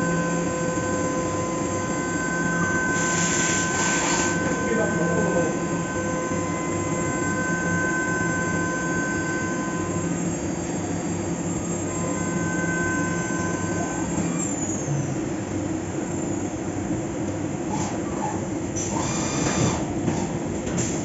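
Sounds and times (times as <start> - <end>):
high steady whine: 0.0 - 14.6.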